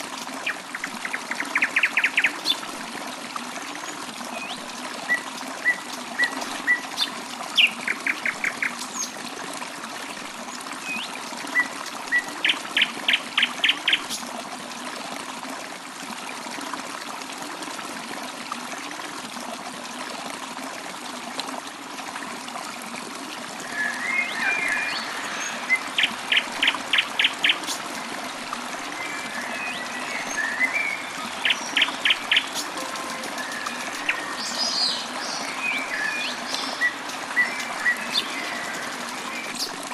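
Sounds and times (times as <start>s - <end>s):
trickling water: 0.0s - 39.9s
birds chirping: 23.7s - 39.8s.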